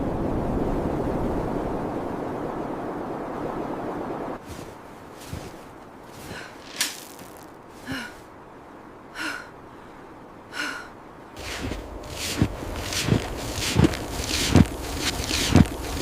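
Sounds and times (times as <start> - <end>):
low wind-like noise: 0.0 - 16.0
breathy gasps: 6.2 - 6.8, 7.8 - 8.2, 9.2 - 11.0.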